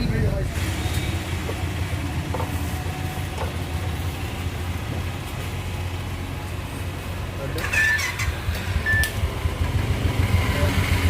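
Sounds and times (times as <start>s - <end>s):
motorcycle engine running: 7.6s - 11.0s.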